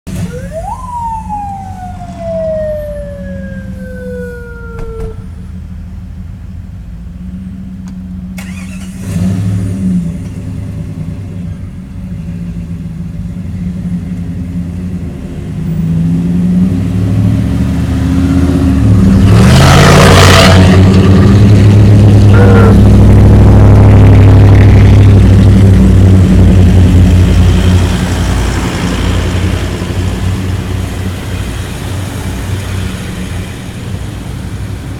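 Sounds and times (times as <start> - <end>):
siren-like falling tone: 0.1 - 5.6, 22.0 - 25.2
off-road vehicle engine revving: 8.1 - 11.3, 14.6 - 30.6.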